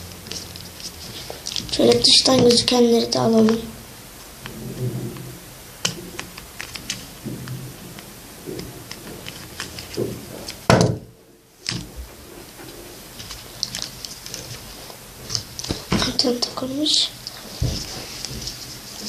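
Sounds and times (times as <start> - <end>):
loud knock: 10.7 - 11.1.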